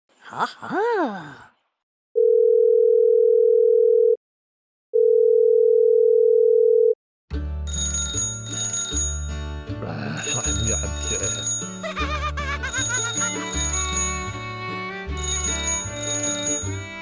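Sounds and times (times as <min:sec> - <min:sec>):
music: 0:07.3 - 0:17.0.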